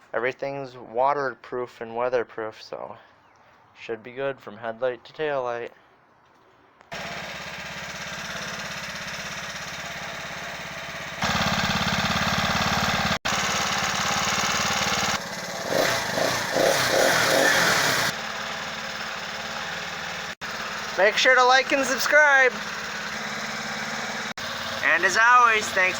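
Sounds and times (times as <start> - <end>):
small bicycle engine running: 6.9 - 25.9.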